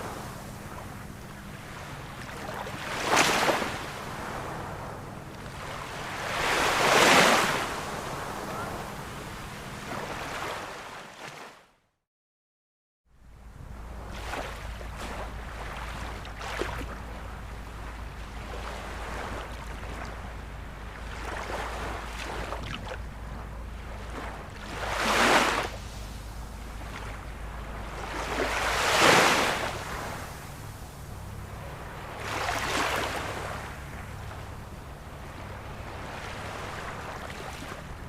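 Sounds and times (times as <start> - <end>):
waves breaking: 0.0 - 11.6, 13.3 - 38.0
low rumble: 13.2 - 38.0.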